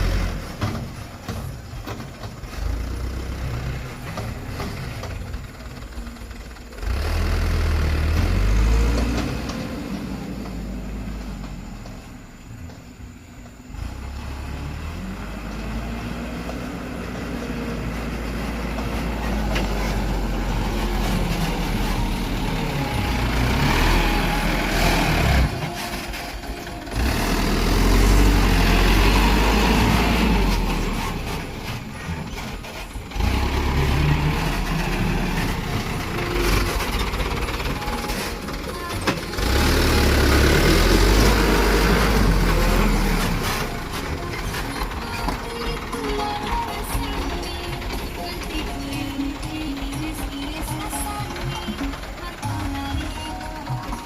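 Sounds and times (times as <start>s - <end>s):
diesel truck engine under load: 0.0s - 54.0s.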